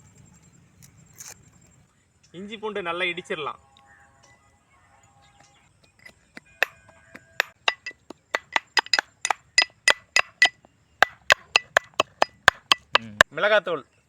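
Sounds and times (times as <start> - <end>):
pestle pounding in mortar: 7.4 - 13.2.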